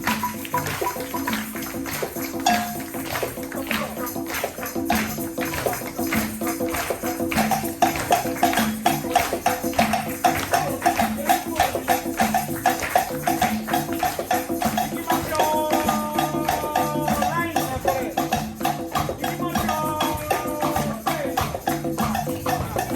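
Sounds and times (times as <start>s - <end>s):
tambourine and shakers rhythm: 0.0s - 22.9s
held bass notes: 15.2s - 22.9s.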